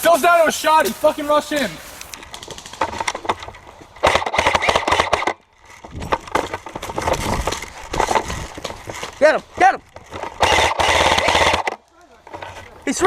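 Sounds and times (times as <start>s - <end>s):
airsoft guns firing: 4.0s - 5.4s, 10.2s - 11.8s.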